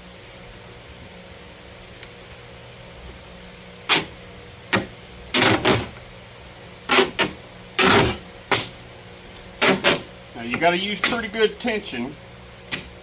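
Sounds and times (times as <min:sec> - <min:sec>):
duct tape ripping off roll: 0:03.9 - 0:04.1, 0:04.7 - 0:06.0, 0:06.9 - 0:08.8, 0:09.6 - 0:10.1.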